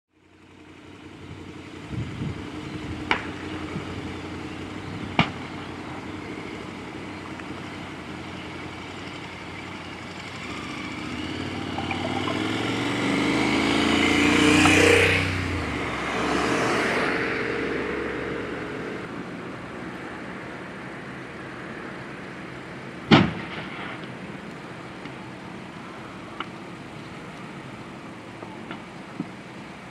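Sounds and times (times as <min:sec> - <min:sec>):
road vehicle driving past: 0:07.6 - 0:19.2.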